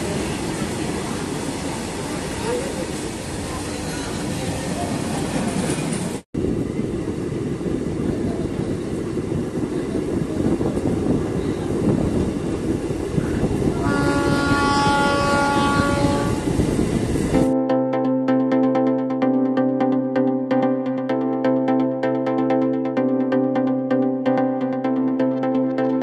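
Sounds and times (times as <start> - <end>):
train running on rails: 0.0 - 17.6
train horn blast: 13.7 - 16.6.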